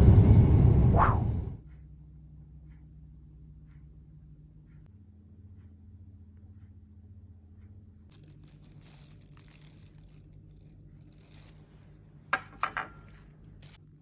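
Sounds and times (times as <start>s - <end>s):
low steady hum: 0.0s - 14.0s
plastic rustling: 8.1s - 12.0s.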